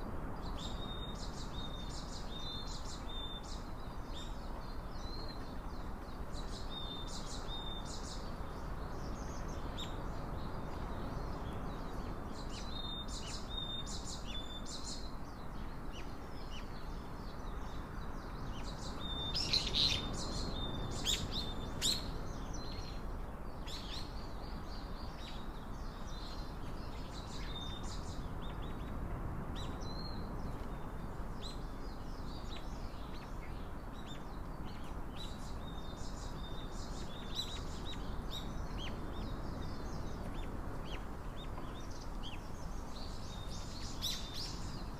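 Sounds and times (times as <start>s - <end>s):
songbirds chirping: 0.0s - 44.9s.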